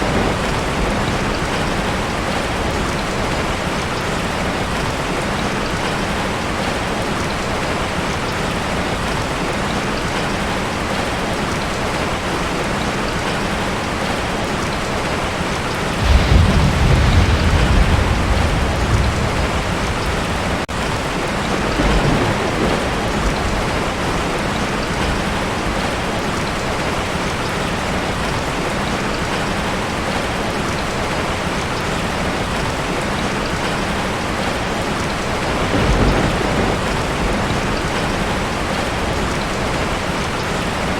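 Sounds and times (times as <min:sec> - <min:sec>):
thunder rumbling: 0:00.0 - 0:07.0, 0:15.7 - 0:27.0, 0:34.2 - 0:40.9
heavy rain on a tin roof: 0:00.0 - 0:40.9.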